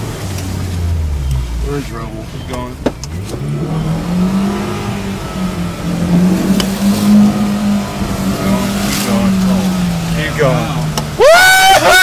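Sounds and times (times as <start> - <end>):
vehicle driving through water: 0.0 - 11.8
vehicle engine revving: 0.0 - 12.0.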